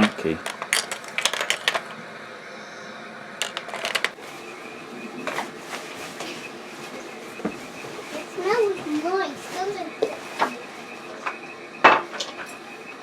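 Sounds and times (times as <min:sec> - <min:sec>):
toy pots and utensils clattering: 0:00.0 - 0:01.9, 0:03.4 - 0:04.2.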